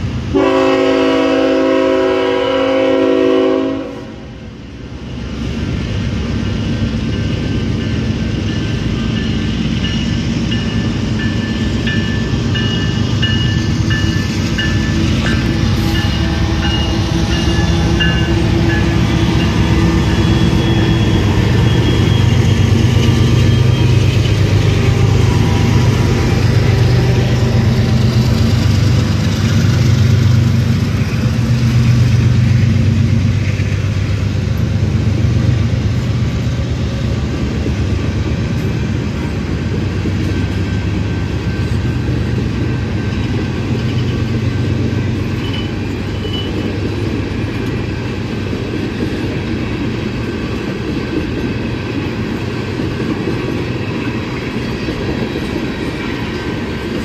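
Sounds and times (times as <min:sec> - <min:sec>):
diesel locomotive engine hum: 0:00.0 - 0:57.0.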